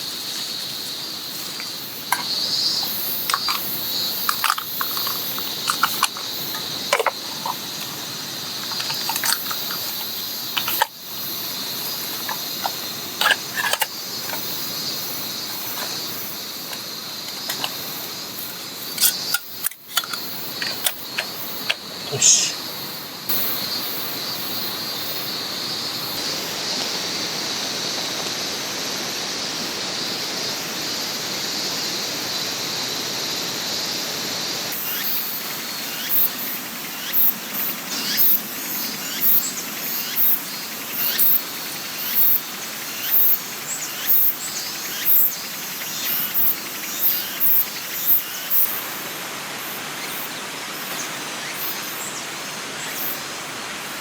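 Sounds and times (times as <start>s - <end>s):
high insect drone: 0.0s - 54.0s
short high-pitched chirps: 22.1s - 22.6s.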